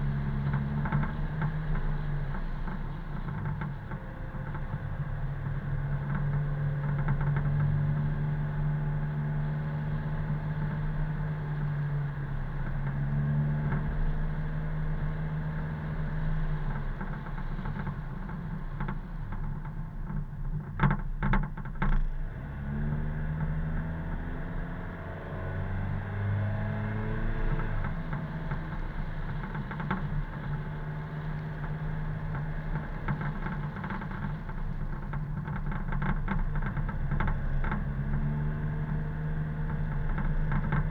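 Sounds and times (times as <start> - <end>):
car engine: 21.8 - 40.9
road noise: 21.8 - 40.9.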